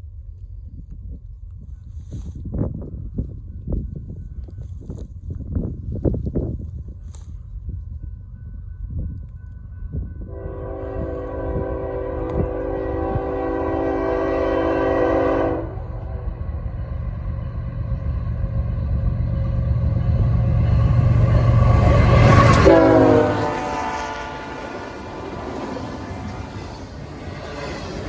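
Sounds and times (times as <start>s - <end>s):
locomotive engine rumble: 9.6s - 28.0s
locomotive horn: 10.3s - 16.5s, 20.2s - 27.0s.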